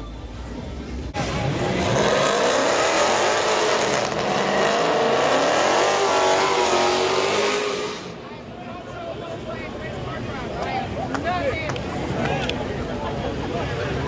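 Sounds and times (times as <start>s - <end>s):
car engine revving hard: 1.2s - 8.2s.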